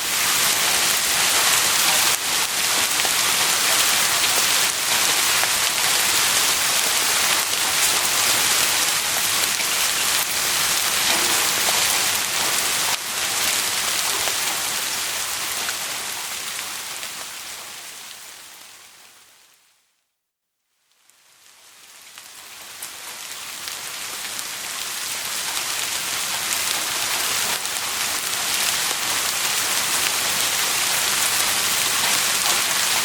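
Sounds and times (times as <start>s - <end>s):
heavy rain falling: 0.0s - 19.5s, 21.3s - 33.0s.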